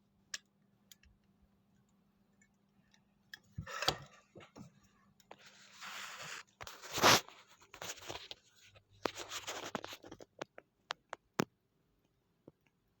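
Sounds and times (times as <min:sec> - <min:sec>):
packaging rustling and scraping: 0:05.3 - 0:10.4.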